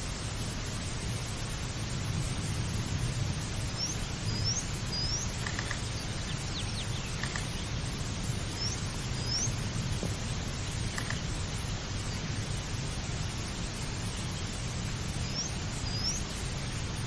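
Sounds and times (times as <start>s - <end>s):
steady low rumble: 0.0s - 17.0s
bird calling: 4.3s - 7.8s.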